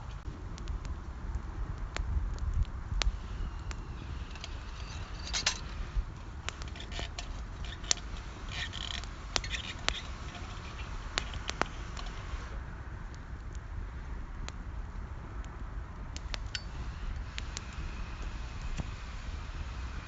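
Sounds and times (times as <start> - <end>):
steady low rumble: 0.0 - 20.0
sharp clicks and pops: 0.5 - 12.3, 15.4 - 18.9
scraping or rustling: 4.0 - 12.5.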